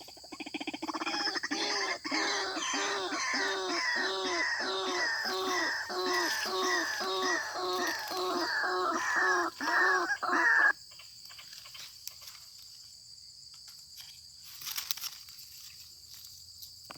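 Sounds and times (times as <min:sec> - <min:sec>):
bird croaking call: 0:00.0 - 0:10.8
high insect trill: 0:00.0 - 0:16.9.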